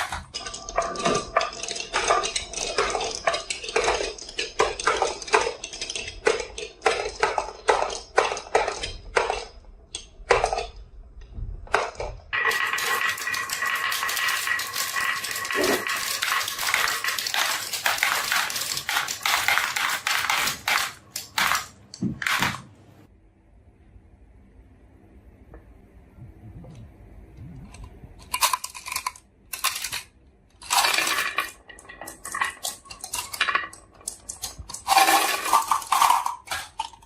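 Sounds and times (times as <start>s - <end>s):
marbles clattering down marble run: 0.0s - 10.8s, 11.7s - 21.7s, 28.2s - 37.0s.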